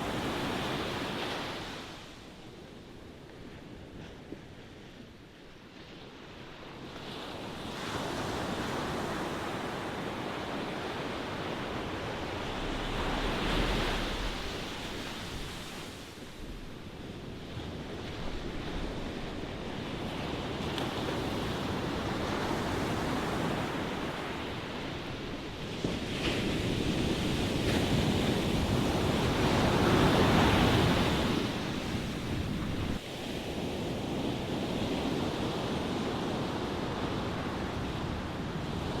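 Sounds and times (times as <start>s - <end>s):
ocean waves breaking: 7.4s - 24.4s.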